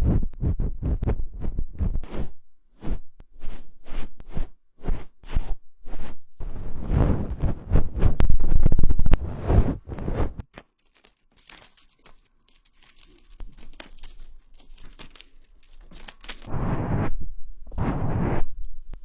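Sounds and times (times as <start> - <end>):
crisp crinkling and crackling: 9.2 - 16.5
loud rough rustling: 10.4 - 16.5.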